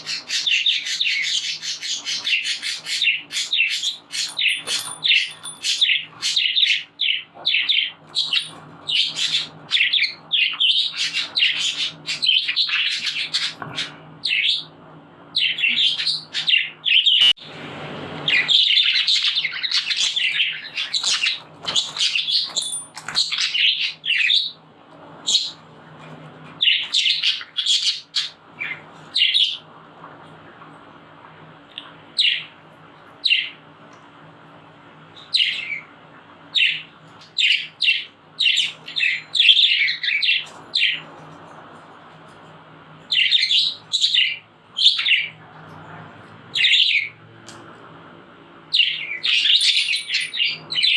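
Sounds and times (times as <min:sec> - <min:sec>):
budgerigars chirping: 0:00.0 - 0:14.7, 0:15.4 - 0:17.3, 0:26.6 - 0:29.6, 0:36.6 - 0:41.0, 0:43.1 - 0:45.4, 0:46.5 - 0:47.2, 0:48.7 - 0:50.9.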